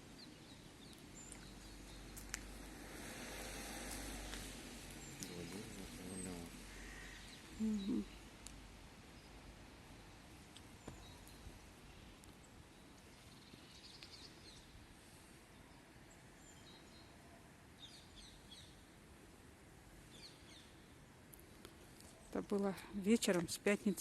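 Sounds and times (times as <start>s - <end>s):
faint bird chirps: 5.0s - 8.3s.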